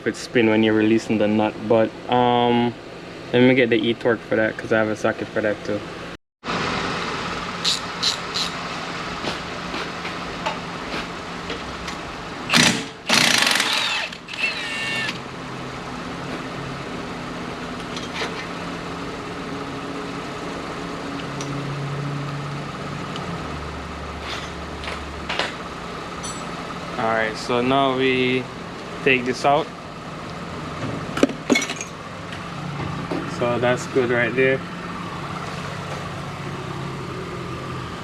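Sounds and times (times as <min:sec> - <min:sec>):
impact wrench running: 0:12.5 - 0:15.2.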